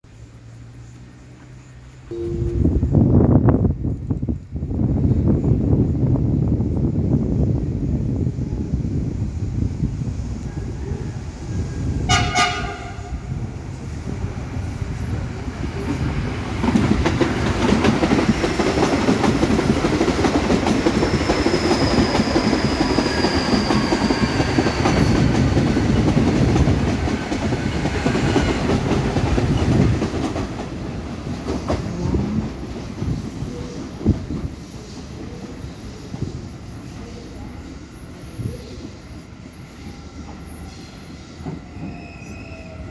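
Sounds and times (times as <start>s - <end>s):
train passing with rail noise: 0.1s - 42.9s
train horn blast: 2.1s - 3.2s, 12.0s - 13.5s
faint falling squeal: 31.2s - 42.9s.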